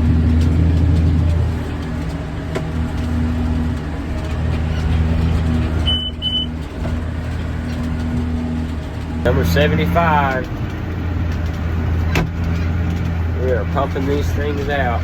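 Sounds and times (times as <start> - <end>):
tractor engine droning: 0.0 - 15.0
short high electronic beeps: 5.9 - 6.5.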